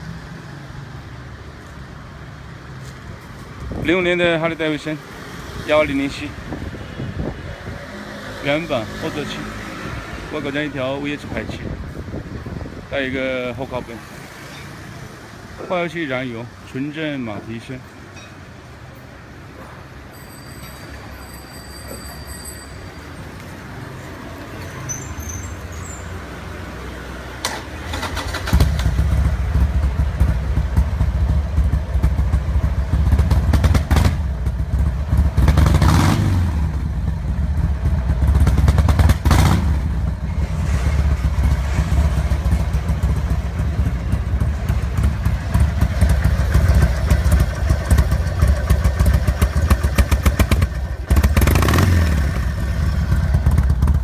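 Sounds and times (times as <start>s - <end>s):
motorcycle engine revving: 27.4s - 54.0s.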